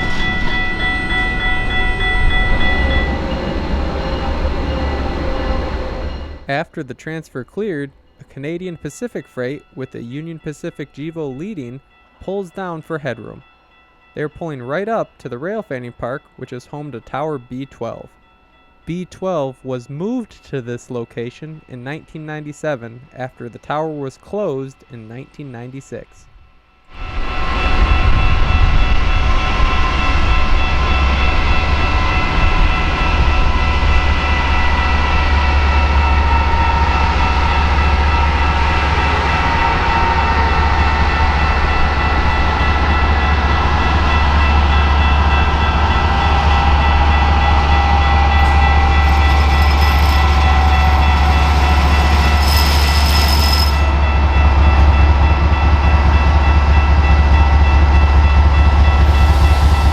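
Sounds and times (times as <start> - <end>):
diesel locomotive engine drone: 0.0 - 6.5, 26.3 - 59.9.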